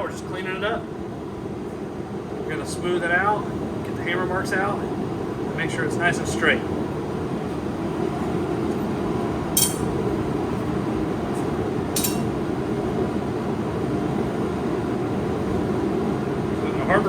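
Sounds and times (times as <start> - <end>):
hammer striking steel on anvil: 9.6 - 10.1, 12.0 - 12.4.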